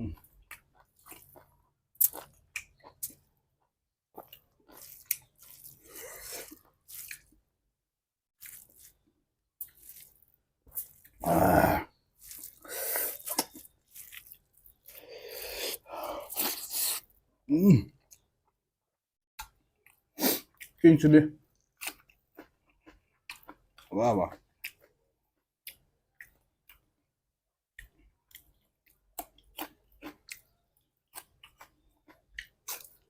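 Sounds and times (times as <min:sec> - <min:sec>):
person chewing food: 0:00.0 - 0:07.4, 0:08.4 - 0:17.1, 0:21.5 - 0:27.0, 0:27.7 - 0:33.0.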